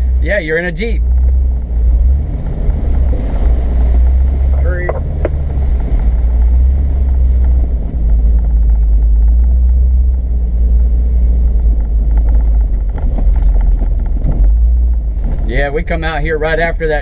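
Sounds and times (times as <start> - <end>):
light rattles: 0.0 - 16.3
off-road vehicle engine rumble: 0.0 - 17.0.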